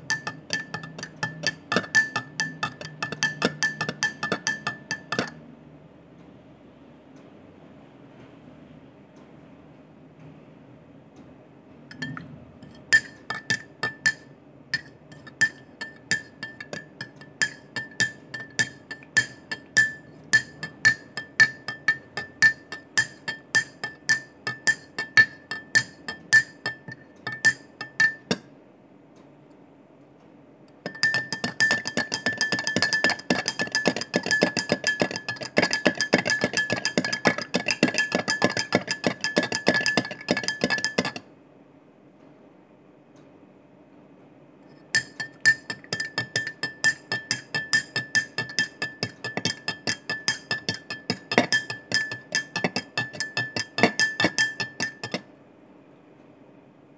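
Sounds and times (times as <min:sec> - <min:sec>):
teaspoon clinking against cup: 0:00.0 - 0:05.4, 0:11.9 - 0:28.5, 0:30.8 - 0:41.2, 0:44.8 - 0:55.3.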